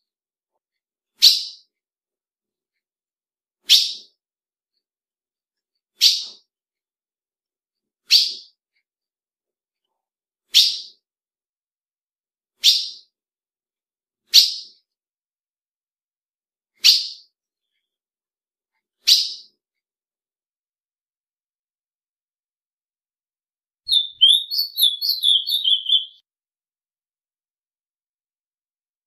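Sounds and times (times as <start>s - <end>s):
bird high call notes: 23.9s - 26.2s.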